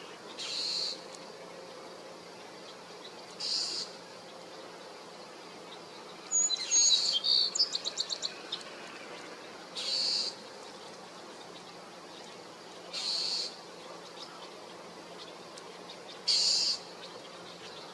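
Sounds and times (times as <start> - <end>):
bird harsh rasping calls: 0.4 - 1.0, 3.4 - 4.0, 9.8 - 10.4, 12.9 - 13.6, 16.3 - 16.9.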